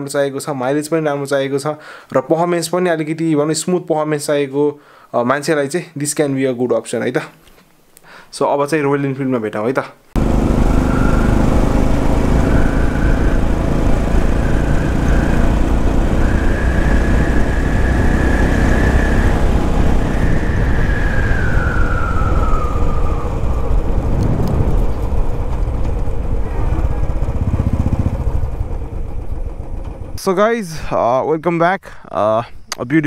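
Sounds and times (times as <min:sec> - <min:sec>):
high whining tone: 0:10.2 - 0:30.2
vehicle low rumble: 0:10.2 - 0:31.0.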